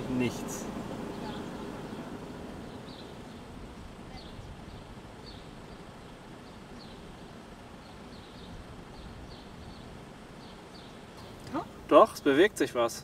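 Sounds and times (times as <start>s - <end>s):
low steady rumble: 0.0s - 12.4s
small bird chirping: 0.1s - 3.5s, 4.1s - 11.7s.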